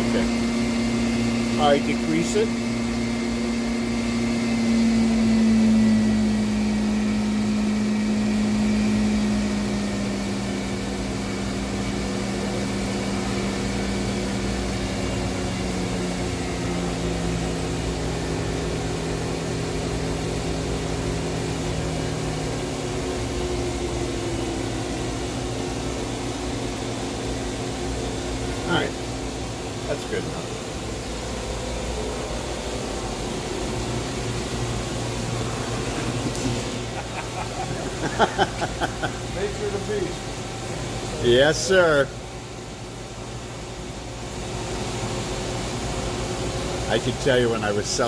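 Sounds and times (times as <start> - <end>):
machine spindle whining down: 0.0 - 27.5
steady machine hum: 0.0 - 48.0.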